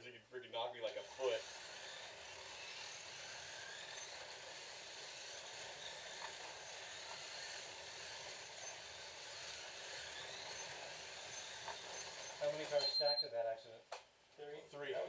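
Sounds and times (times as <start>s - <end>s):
slot cars whirring on track: 0.9s - 13.0s
electric motor whines: 0.9s - 13.2s.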